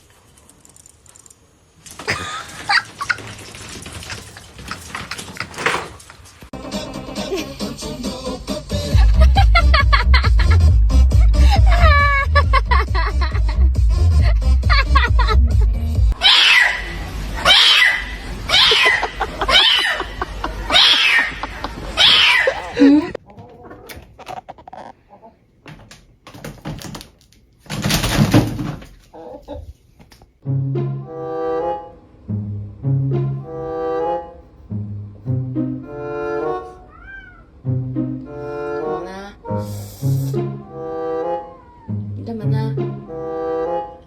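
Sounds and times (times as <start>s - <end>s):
clicks and rustling: 0.2s - 6.5s
pet short pitched cries: 17.4s - 20.1s, 20.7s - 21.4s.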